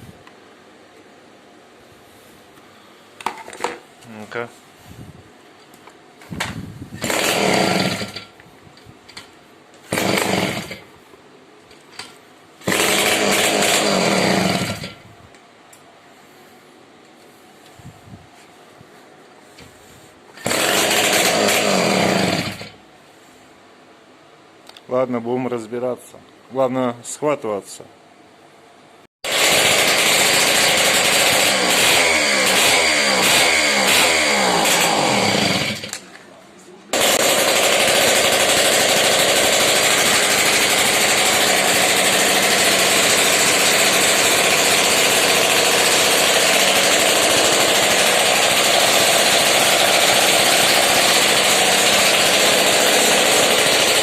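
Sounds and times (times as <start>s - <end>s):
moped engine revving: 29.3s - 35.9s.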